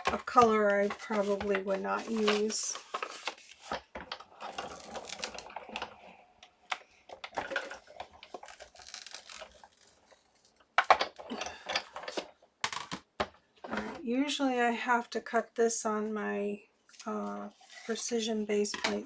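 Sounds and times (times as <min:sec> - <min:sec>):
paper rustling and scraping: 0:00.3 - 0:03.8.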